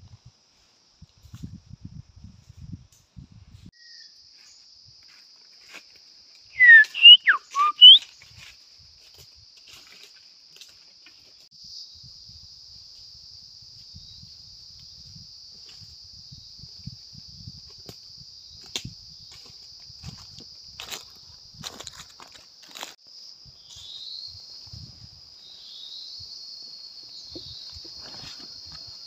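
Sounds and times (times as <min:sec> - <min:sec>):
insects droning: 0:00.0 - 0:29.0
bird whistled call: 0:06.6 - 0:08.1.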